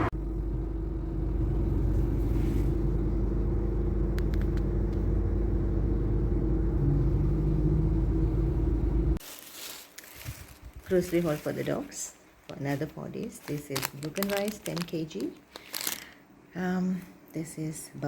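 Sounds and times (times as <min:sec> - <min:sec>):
car engine running: 0:00.0 - 0:09.2.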